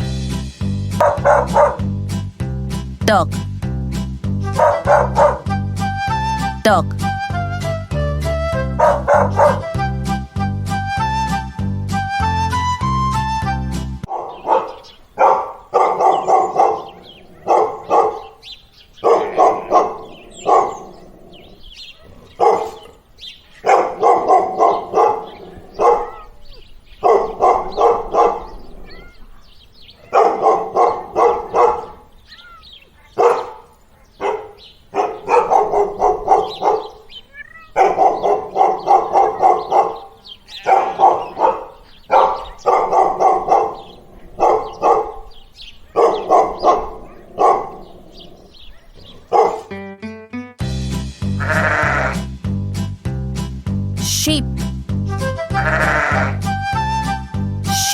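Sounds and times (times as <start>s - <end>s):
dog barking: 1.0s - 1.9s, 4.6s - 5.5s, 8.8s - 9.6s, 14.1s - 49.8s.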